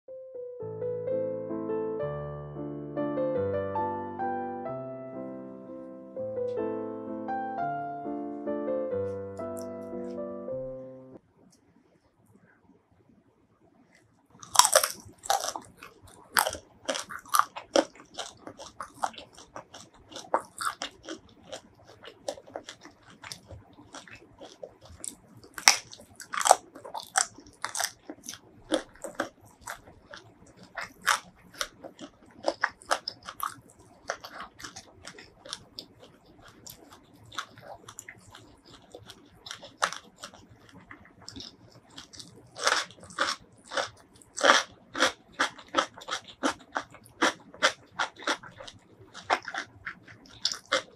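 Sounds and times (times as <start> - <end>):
soft chewing: 13.9 - 50.9
crisp crunches and bites: 14.4 - 50.9.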